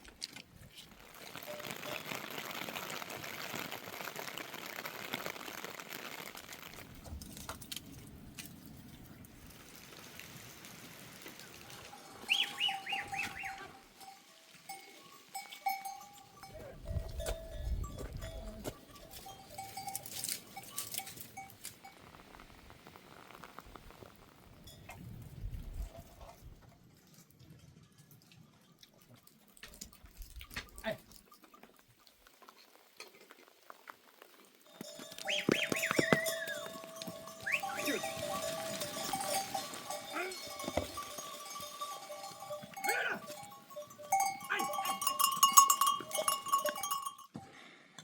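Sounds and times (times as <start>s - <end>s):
livestock bell ringing: 11.8s - 21.6s, 34.7s - 47.4s.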